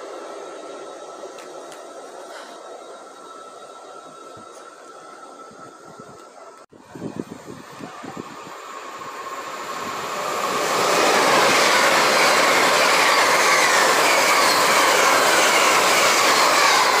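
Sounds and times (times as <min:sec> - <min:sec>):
faint falling whine: 0:00.0 - 0:13.3
train rushing past on rails: 0:00.0 - 0:17.0.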